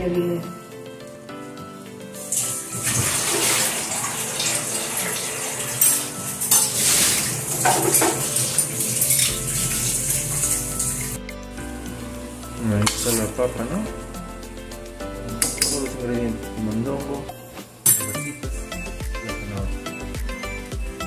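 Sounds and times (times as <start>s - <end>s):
onion sizzling in oil: 2.2s - 11.2s
metal spoon clinking against pot: 15.4s - 16.0s, 17.8s - 18.3s.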